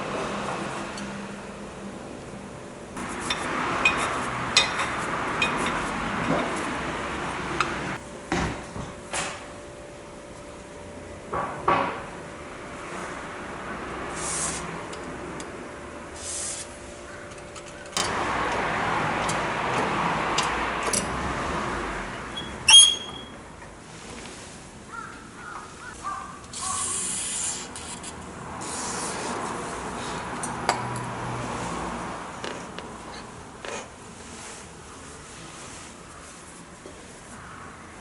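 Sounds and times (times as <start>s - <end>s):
sharp metallic clink: 22.4s - 23.3s.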